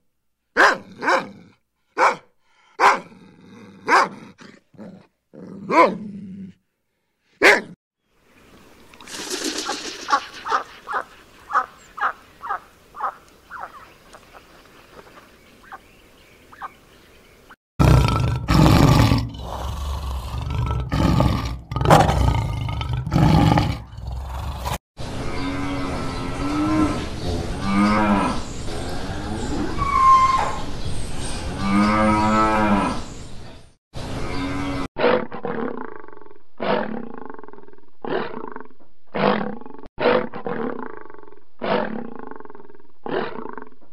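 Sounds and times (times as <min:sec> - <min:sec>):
rhythmic grunting calls: 0:09.1 - 0:13.8
lion roaring: 0:17.8 - 0:24.8.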